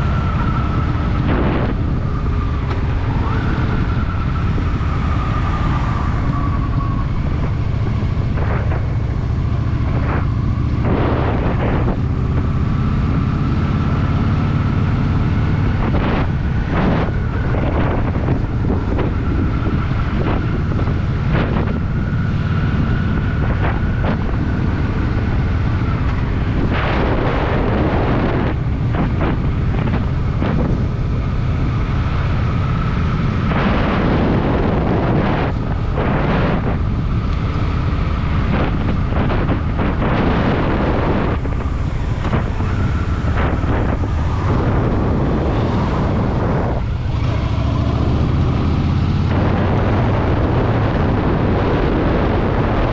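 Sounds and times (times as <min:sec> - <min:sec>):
motorcycle engine running: 0:00.0 - 0:52.9
wind buffeting microphone: 0:00.0 - 0:52.9.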